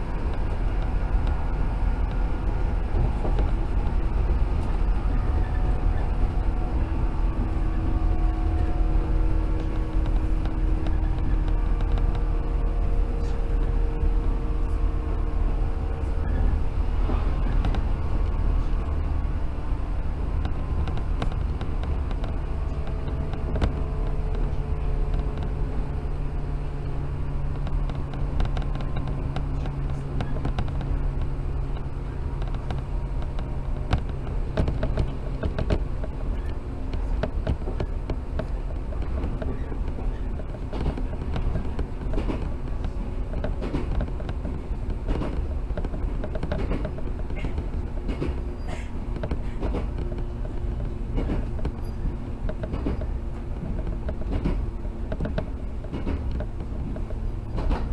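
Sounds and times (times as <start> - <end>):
train wheels rumbling on rails: 0.0 - 57.9
track clicks and knocks: 0.2 - 57.9
electric traction motor hum: 1.0 - 27.7.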